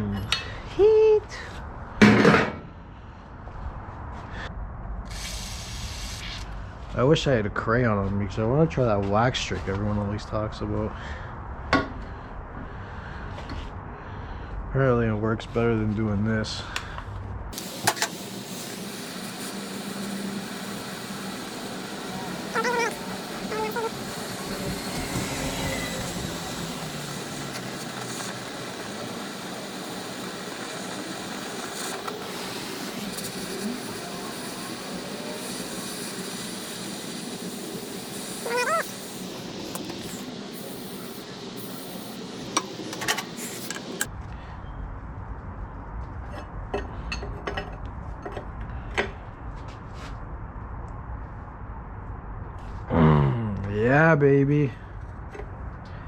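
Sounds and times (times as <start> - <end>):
torch hissing: 5.1 - 6.5, 17.6 - 44.1.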